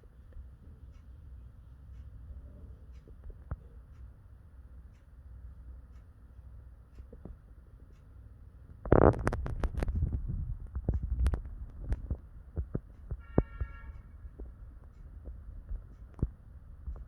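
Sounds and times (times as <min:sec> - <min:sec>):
brief tone: 0:13.2 - 0:14.1.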